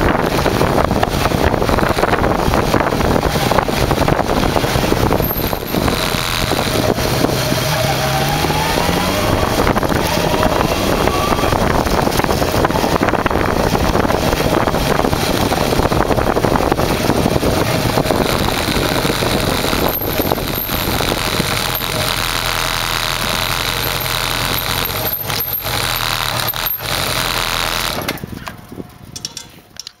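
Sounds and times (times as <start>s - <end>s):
motorcycle engine running: 0.0s - 29.8s
wind on microphone: 0.0s - 29.8s.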